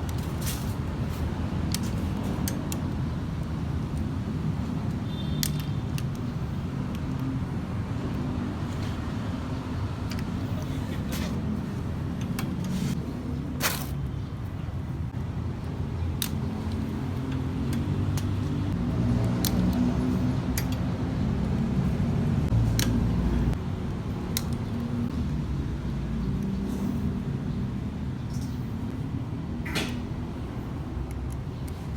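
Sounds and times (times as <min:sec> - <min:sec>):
traffic rumble: 0:00.0 - 0:31.9
sharp metallic clicks: 0:01.6 - 0:07.3.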